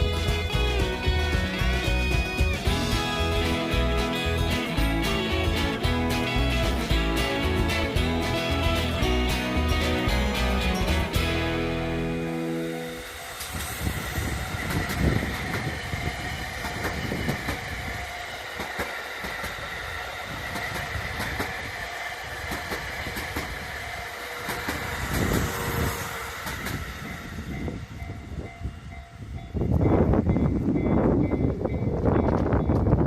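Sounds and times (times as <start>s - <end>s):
train rumble: 0.0s - 33.0s
high ringing tone: 10.7s - 17.4s
train wheels knocking on rail joints: 13.3s - 33.0s.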